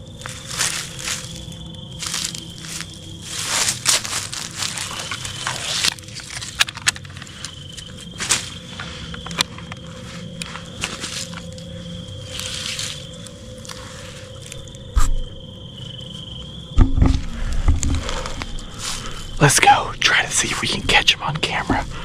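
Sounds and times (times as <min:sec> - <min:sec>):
footsteps crunching on dry leaves: 0:00.0 - 0:06.6, 0:09.8 - 0:14.9
twig clicks: 0:00.2 - 0:15.3.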